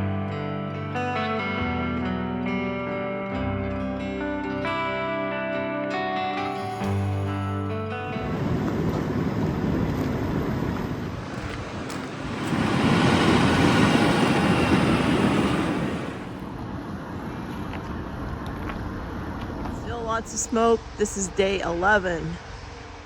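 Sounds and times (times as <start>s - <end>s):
vehicle rumbling: 7.0s - 23.0s.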